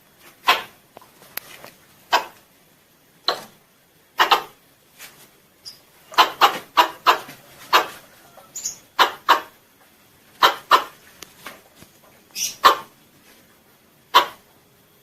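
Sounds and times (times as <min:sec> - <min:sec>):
squirrel chirping calls: 0:05.6 - 0:07.2, 0:08.5 - 0:09.5, 0:12.3 - 0:12.9.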